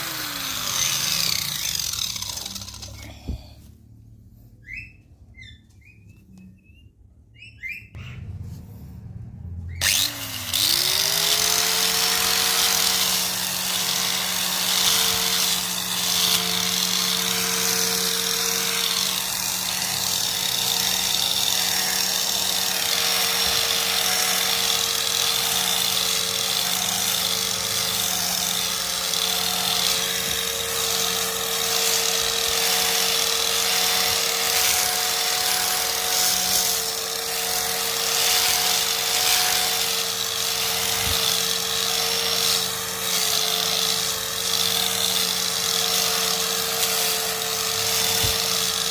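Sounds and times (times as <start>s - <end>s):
grass cutter motor spinning up: 0.0s - 3.6s, 9.6s - 48.9s
short bird chirps: 4.6s - 8.2s.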